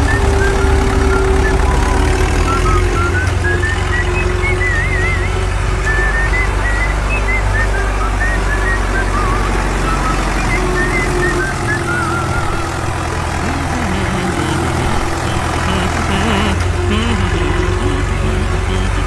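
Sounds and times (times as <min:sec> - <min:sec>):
heavy machine engine running: 0:00.0 - 0:19.0.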